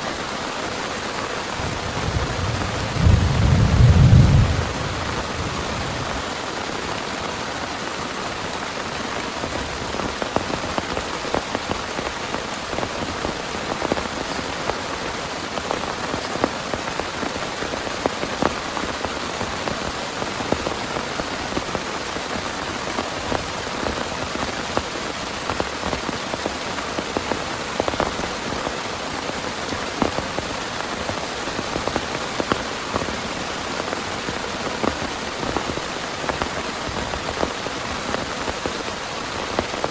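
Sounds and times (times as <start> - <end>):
heavy rain falling: 0.0 - 39.9
raindrops striking close by: 0.0 - 39.9.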